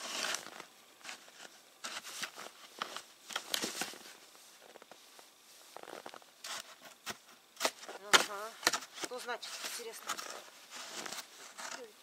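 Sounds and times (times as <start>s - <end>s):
crunching snow and sticks: 5.7s - 12.0s.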